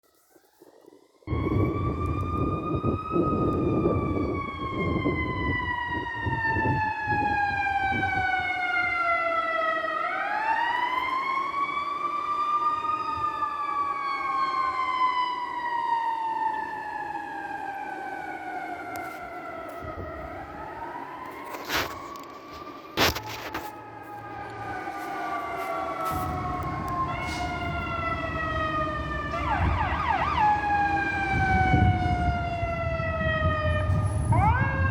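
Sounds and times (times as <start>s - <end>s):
wailing siren: 1.3s - 34.9s
heavy vehicle engine rumble: 21.9s - 34.9s.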